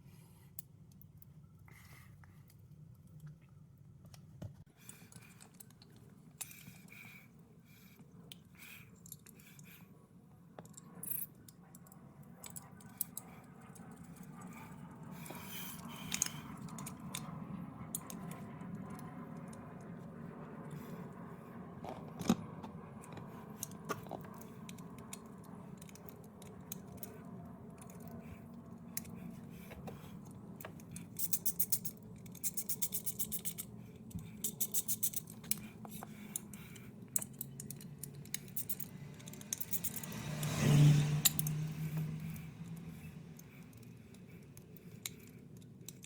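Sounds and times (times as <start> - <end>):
socket ratchet clicking: 31.2 - 33.7, 34.4 - 36.4, 37.2 - 40.6.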